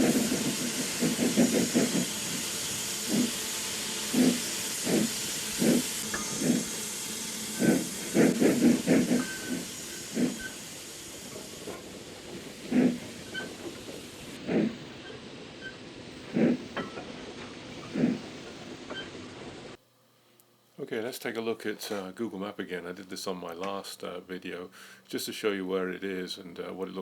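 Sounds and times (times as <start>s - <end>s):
steam hissing: 0.0s - 19.8s
steam locomotive chuffing: 0.0s - 19.8s.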